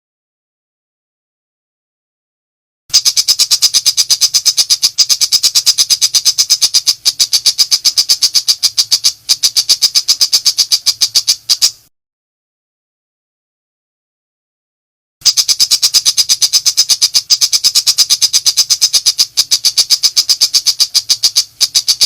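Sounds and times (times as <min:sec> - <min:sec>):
shrike harsh rattling call: 0:02.9 - 0:11.9, 0:15.2 - 0:22.0.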